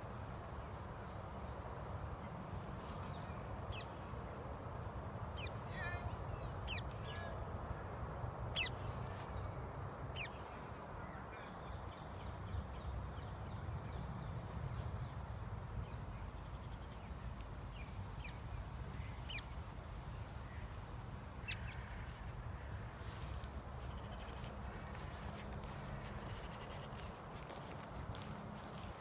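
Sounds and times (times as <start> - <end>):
steady low rumble: 20.6 - 29.0
birds chirping: 21.4 - 29.0.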